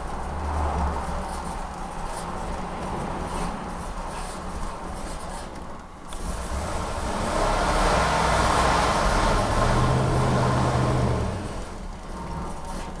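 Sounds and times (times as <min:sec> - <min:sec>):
engine revving: 0:06.1 - 0:12.5.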